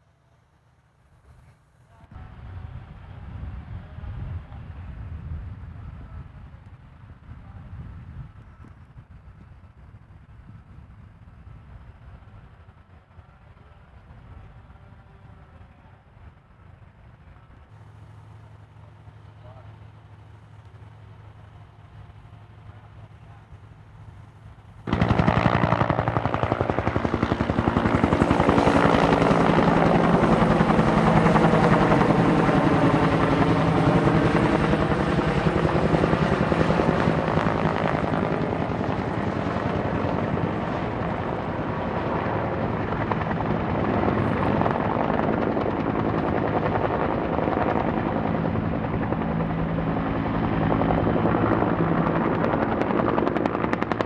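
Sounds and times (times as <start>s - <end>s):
helicopter engine whine: 24.6s - 54.0s
helicopter rotor chopping: 24.6s - 54.0s.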